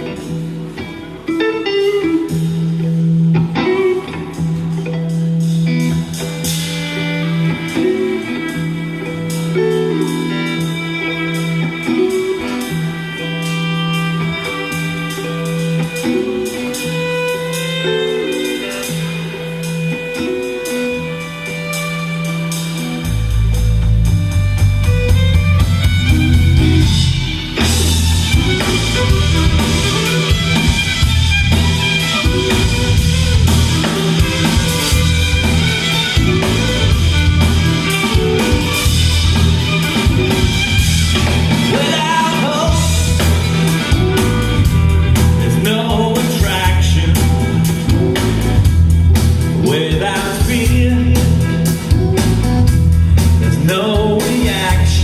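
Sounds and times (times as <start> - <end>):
drum kit: 0.0 - 55.0
electric guitar: 0.0 - 55.0
pulsing bass line: 23.1 - 49.7, 50.5 - 53.8.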